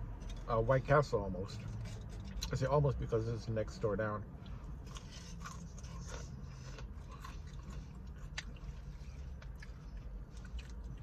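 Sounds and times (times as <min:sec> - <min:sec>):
man chewing: 0:04.4 - 0:11.0.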